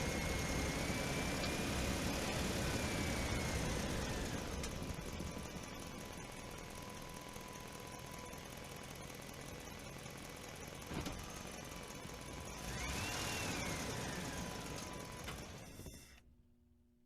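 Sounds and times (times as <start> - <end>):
rising and falling whine: 0.0 - 8.3, 12.4 - 16.2
vehicle engine running: 0.0 - 16.2.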